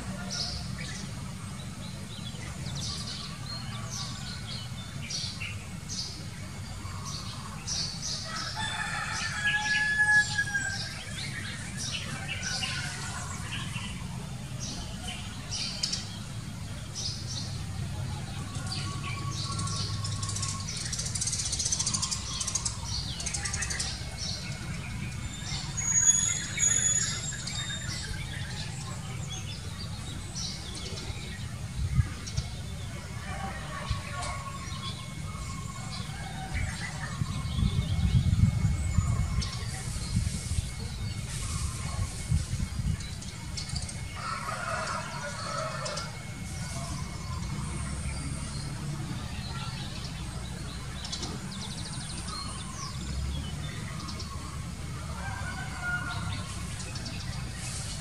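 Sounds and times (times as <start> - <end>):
birds chirping: 0.0 - 58.0
bird whistled notes: 25.5 - 28.2
steady low rumble: 34.8 - 44.2.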